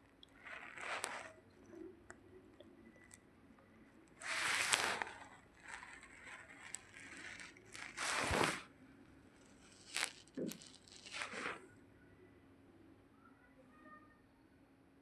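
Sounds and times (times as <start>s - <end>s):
rustling and crunching: 0.0s - 1.4s, 4.2s - 8.7s, 9.4s - 11.6s.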